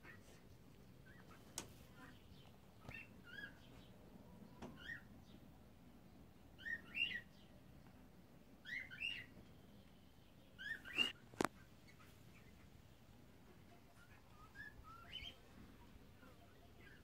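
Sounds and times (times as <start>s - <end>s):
cockatiels chirping: 4.8s - 5.0s, 8.6s - 9.3s, 10.6s - 12.6s, 14.0s - 15.4s.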